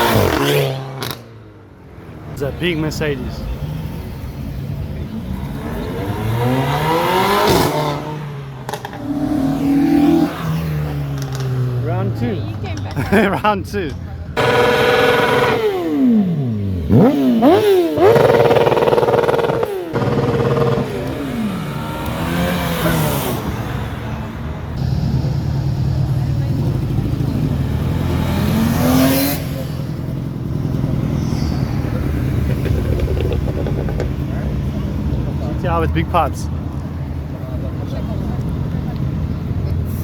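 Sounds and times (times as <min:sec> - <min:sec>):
car engine running steadily: 0:13.8 - 0:39.8
higher engine note: 0:14.4 - 0:28.7
car accelerating past: 0:14.4 - 0:35.7.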